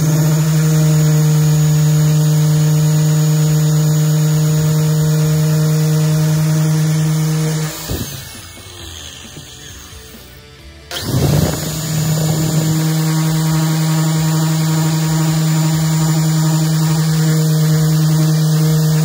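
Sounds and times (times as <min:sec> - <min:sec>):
orbital sander humming: 0:00.0 - 0:19.0.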